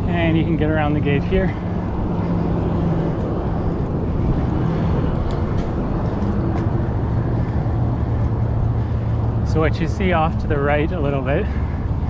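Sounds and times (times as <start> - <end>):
bike tyres rolling: 0.0 - 12.0
wind rushing: 1.7 - 10.5.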